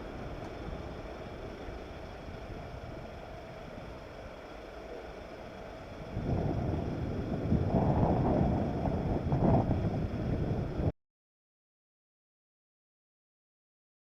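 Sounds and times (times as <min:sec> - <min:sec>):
jet engine rumble: 0:00.0 - 0:10.9
wind on microphone: 0:05.9 - 0:10.9.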